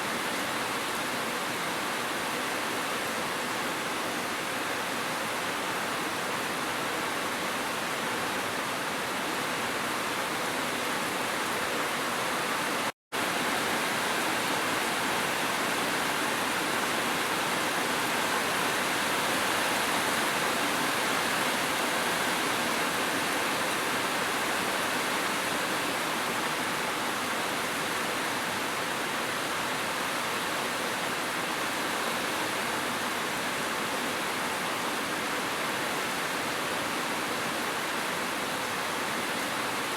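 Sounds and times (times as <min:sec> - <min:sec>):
gentle rain: 0:00.0 - 0:39.9.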